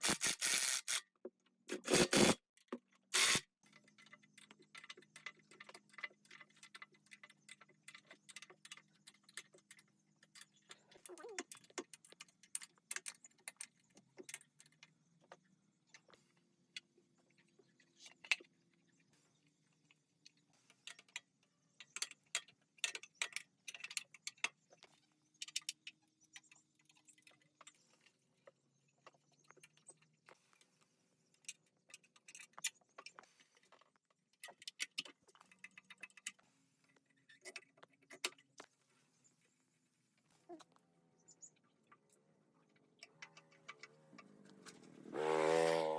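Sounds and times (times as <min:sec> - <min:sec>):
small metal parts clinking: 0:00.0 - 0:01.0.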